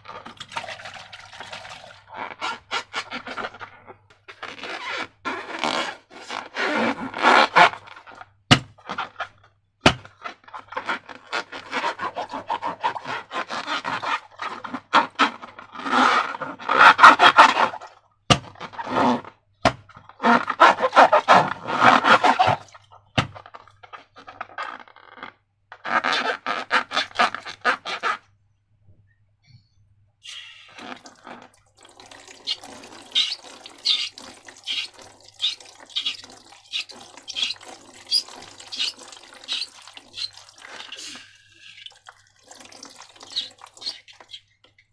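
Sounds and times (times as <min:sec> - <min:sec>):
slime being scraped: 0:09.8 - 0:23.4, 0:32.4 - 0:41.9, 0:43.2 - 0:44.4.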